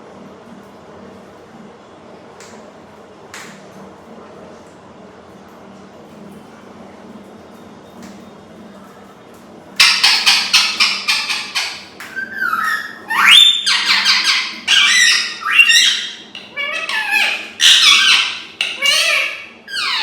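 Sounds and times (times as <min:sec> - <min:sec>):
parrot squawking: 0:09.8 - 0:20.0.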